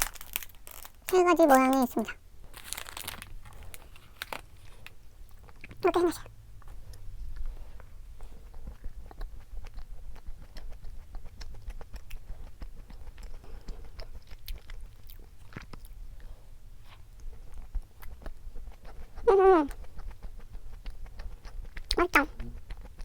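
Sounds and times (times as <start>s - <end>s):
person chewing: 2.6s - 23.0s.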